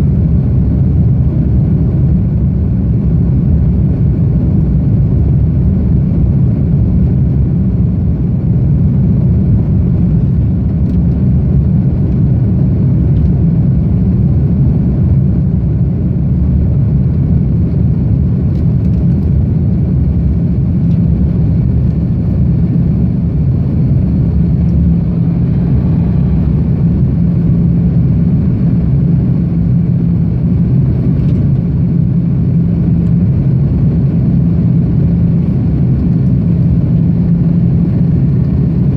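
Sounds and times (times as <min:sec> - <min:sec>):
jet engine drone in cabin: 0:00.0 - 0:38.9
airflow noise: 0:20.0 - 0:38.9.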